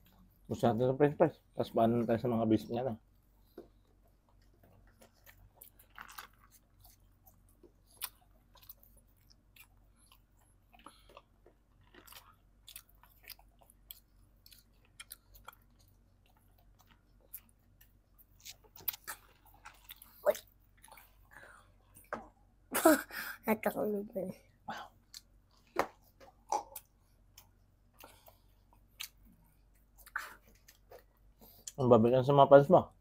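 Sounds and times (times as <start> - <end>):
chewing and mouth sounds: 3.4 - 22.1, 24.8 - 31.8.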